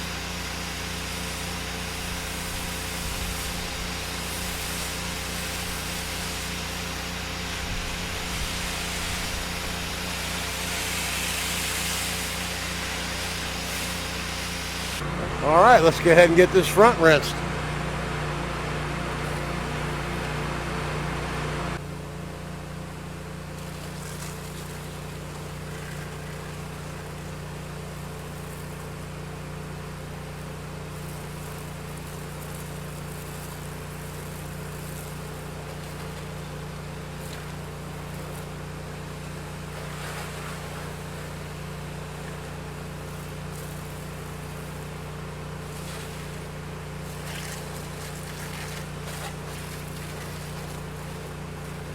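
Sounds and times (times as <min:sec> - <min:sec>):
water spray hissing: 0:00.0 - 0:18.0, 0:30.9 - 0:51.9
pressure washer engine droning: 0:00.0 - 0:51.9.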